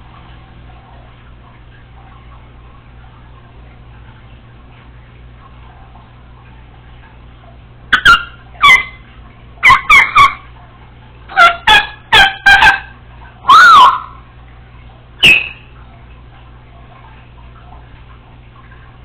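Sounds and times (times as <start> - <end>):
parrot calling loudly: 7.9 - 9.0, 9.6 - 10.4, 11.3 - 14.2, 15.2 - 15.6.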